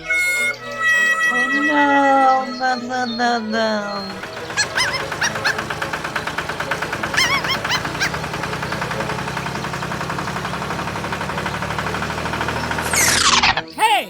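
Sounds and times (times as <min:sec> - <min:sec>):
honking bird calls: 0:00.0 - 0:13.2
small engine rattling: 0:03.1 - 0:13.6.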